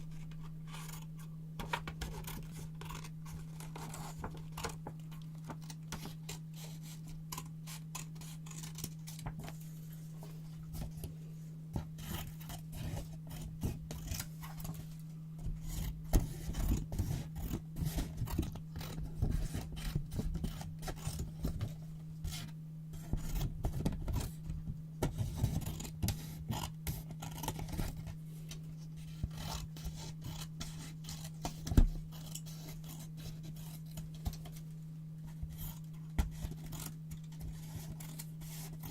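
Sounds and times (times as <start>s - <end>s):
scissors snipping paper: 35.4s - 38.9s.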